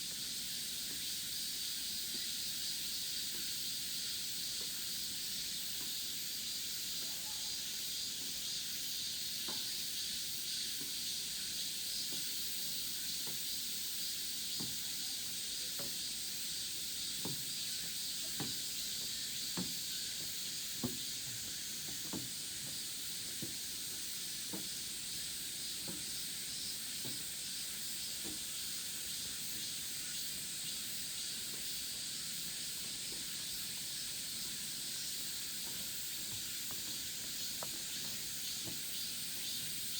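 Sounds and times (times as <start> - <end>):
cicadas chorus: 0.0 - 39.9.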